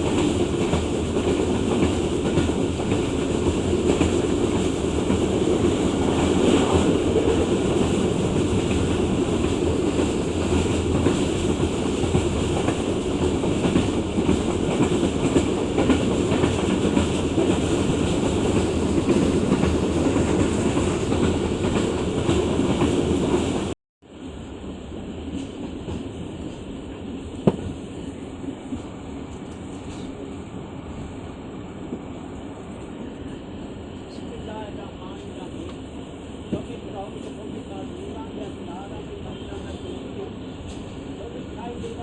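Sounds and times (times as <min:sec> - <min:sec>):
train running on rails: 0:00.0 - 0:42.0
sharp knock: 0:27.4 - 0:27.7.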